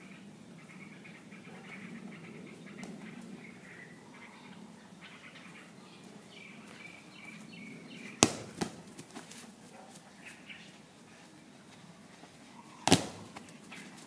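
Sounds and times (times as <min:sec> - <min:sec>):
ball kicked thud: 0:08.2 - 0:09.0, 0:12.8 - 0:13.4.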